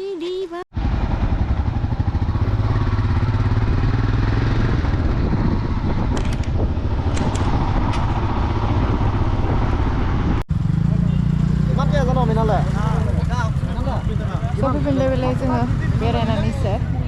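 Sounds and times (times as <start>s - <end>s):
motorcycle engine running: 0.8s - 17.0s.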